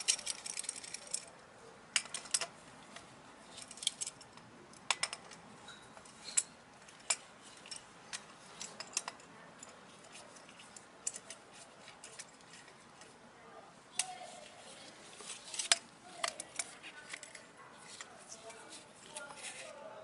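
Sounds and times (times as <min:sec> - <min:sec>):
metal tools clicking and clinking: 0:00.0 - 0:13.1, 0:14.0 - 0:19.8.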